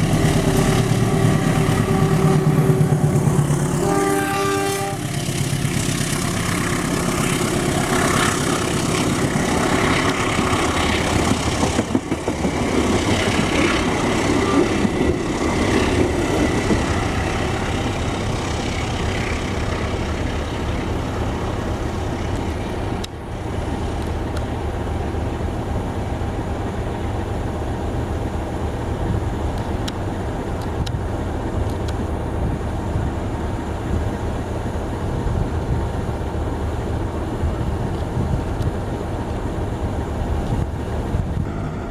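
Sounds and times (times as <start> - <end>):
train rumbling by: 0.0 - 41.9.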